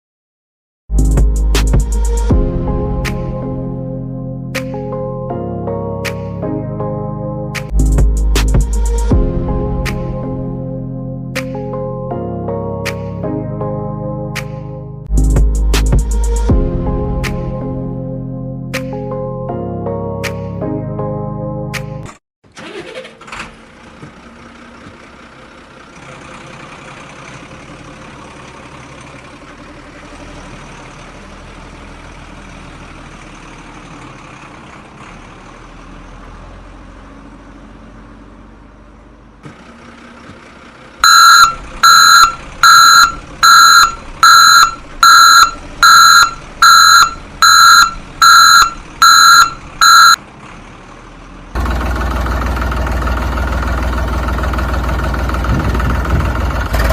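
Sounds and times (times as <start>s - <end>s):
vehicle reversing beeper: 41.0s - 50.2s.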